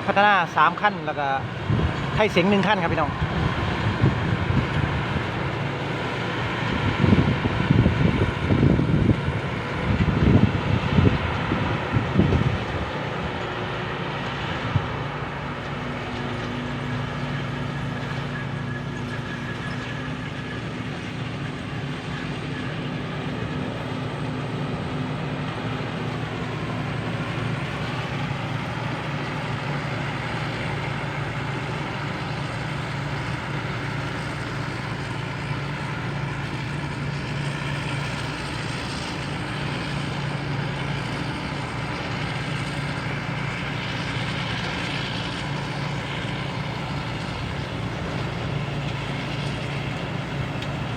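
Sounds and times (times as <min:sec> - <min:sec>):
diesel engine droning: 0:00.0 - 0:50.9
threshing machinery whirring: 0:00.0 - 0:50.9.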